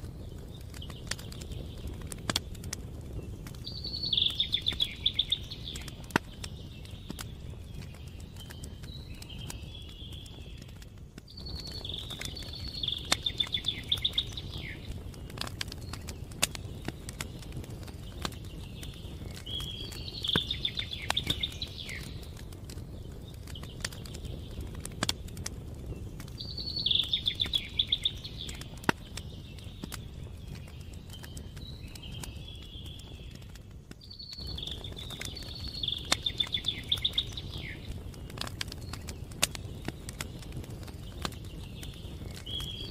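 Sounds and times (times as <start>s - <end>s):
campfire crackling and popping: 0.0s - 42.9s
songbird trilling: 11.6s - 14.8s, 26.4s - 28.7s.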